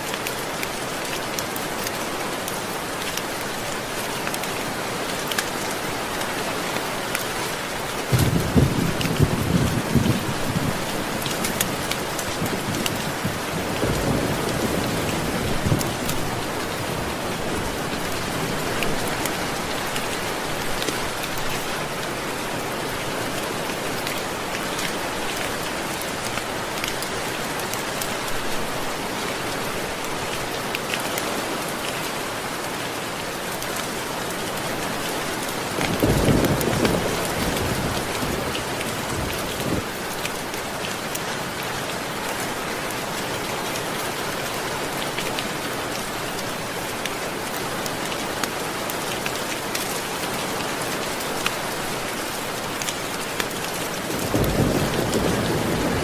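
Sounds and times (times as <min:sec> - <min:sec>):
heavy rain on a surface: 0:00.0 - 0:56.0
low thunder rumbling: 0:08.1 - 0:10.9, 0:54.0 - 0:56.0.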